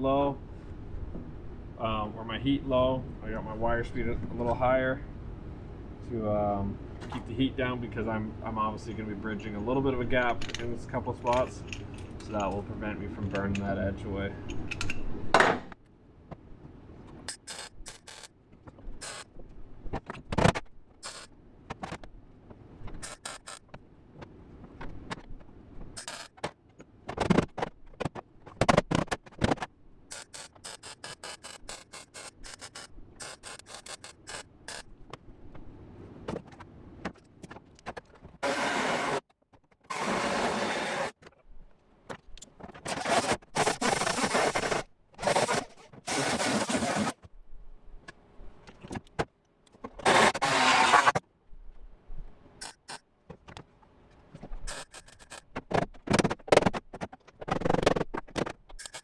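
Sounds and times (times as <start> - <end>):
short clicks and crackles: 17.3 - 18.3, 19.0 - 19.3, 20.0 - 22.1, 23.0 - 23.8, 26.0 - 34.9, 52.6 - 53.0, 54.7 - 56.8
welder buzzing and crackling: 17.3 - 18.3, 19.0 - 19.3, 21.0 - 21.3, 23.0 - 23.7, 26.0 - 26.4, 30.1 - 34.9, 38.4 - 39.2, 39.9 - 41.2, 42.9 - 47.2, 50.0 - 51.2, 52.6 - 53.0, 54.7 - 55.4.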